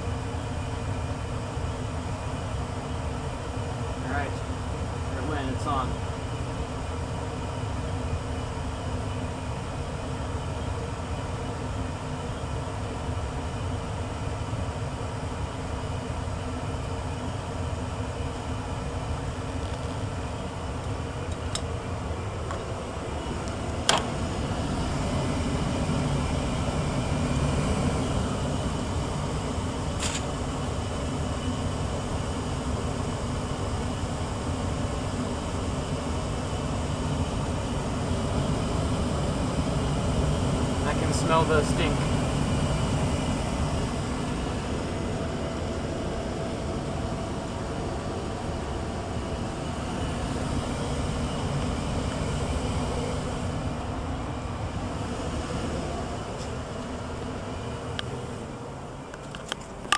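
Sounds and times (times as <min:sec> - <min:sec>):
gas furnace running: 0:00.0 - 0:59.9.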